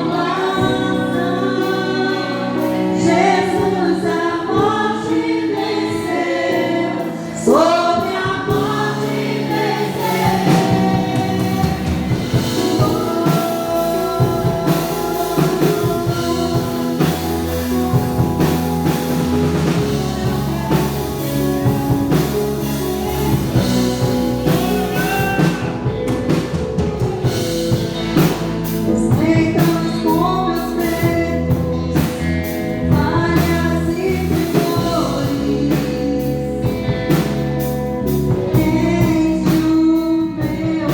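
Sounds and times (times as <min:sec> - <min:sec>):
voices singing: 0:00.0 - 0:27.1
bass: 0:00.0 - 0:40.9
drum kit beat: 0:08.0 - 0:40.0.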